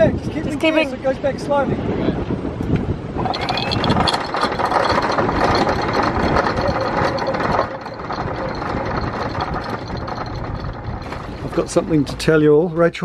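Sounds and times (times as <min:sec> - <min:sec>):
boat engines running: 0:02.7 - 0:13.0
anchor chain rattling: 0:03.2 - 0:12.4.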